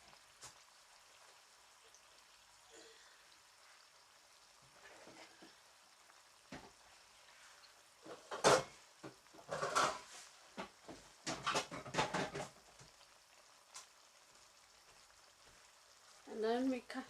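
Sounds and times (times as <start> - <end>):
faint simmering: 0.0 - 17.0
utensil stirring and scraping pan: 7.3 - 12.6.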